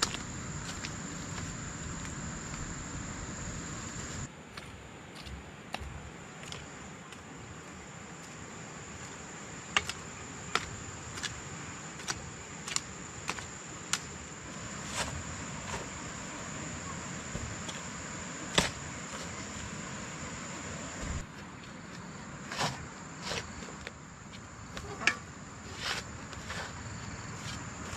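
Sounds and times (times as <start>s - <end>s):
high-pitched insect drone: 0.0s - 4.3s.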